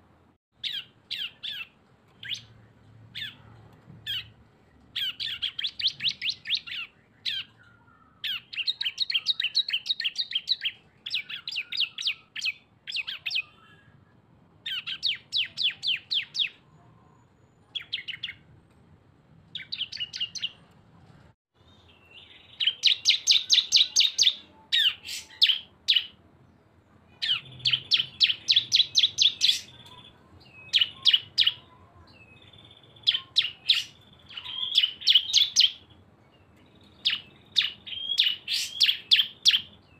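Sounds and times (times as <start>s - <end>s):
songbird rapid chirping bursts: 0.6s - 3.4s, 4.0s - 14.0s, 14.6s - 18.4s, 19.5s - 20.6s, 21.6s - 26.2s, 27.0s - 39.9s.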